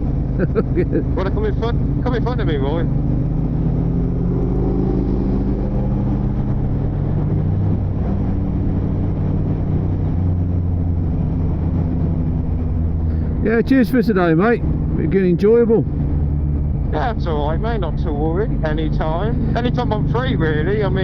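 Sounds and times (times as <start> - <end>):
motorcycle engine running: 0.0 - 21.0
wind and road noise: 0.0 - 21.0.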